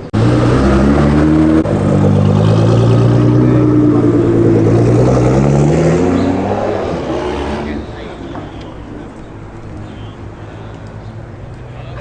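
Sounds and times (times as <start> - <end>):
car engine accelerating hard: 0.1 - 8.1.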